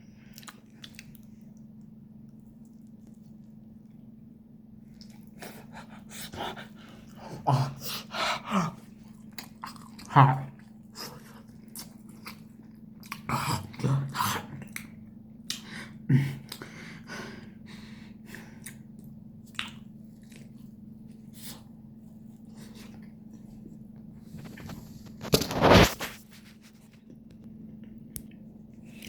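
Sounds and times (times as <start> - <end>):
faint steady hum: 0.0 - 29.0
person chewing food: 0.1 - 4.1, 4.9 - 17.0, 18.2 - 26.0
wet mouth clicks: 0.3 - 1.3.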